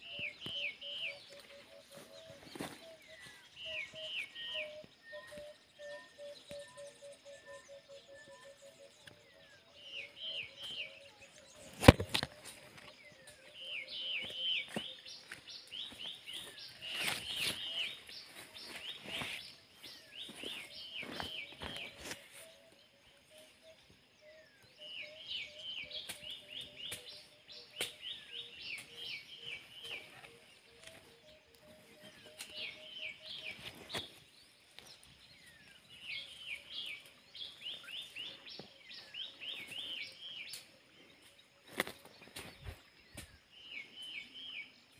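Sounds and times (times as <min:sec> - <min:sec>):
bird singing: 0:00.0 - 0:44.9.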